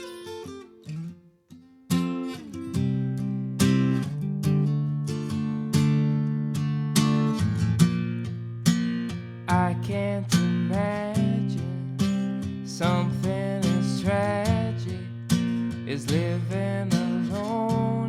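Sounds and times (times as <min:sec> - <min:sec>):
acoustic guitar strumming: 0:00.0 - 0:18.0
man singing: 0:09.5 - 0:15.2, 0:15.8 - 0:18.0.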